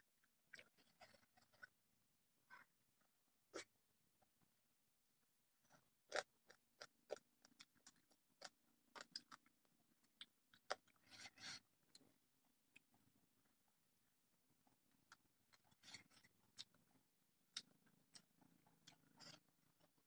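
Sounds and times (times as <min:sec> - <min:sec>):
person chewing with smacks and crunches: 0:00.5 - 0:01.8, 0:05.7 - 0:13.0, 0:14.6 - 0:16.8, 0:17.5 - 0:20.0.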